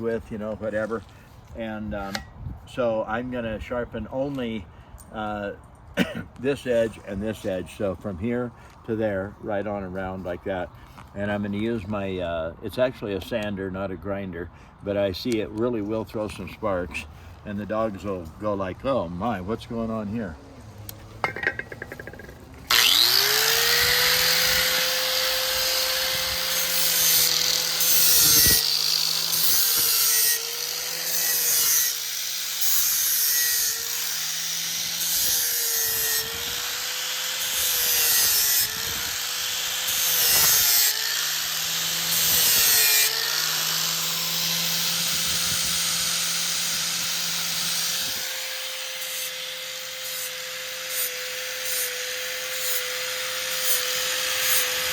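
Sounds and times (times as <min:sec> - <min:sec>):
steel grinding against sander: 0:00.1 - 0:02.3, 0:21.2 - 0:54.9
electric sander motor: 0:19.8 - 0:54.9.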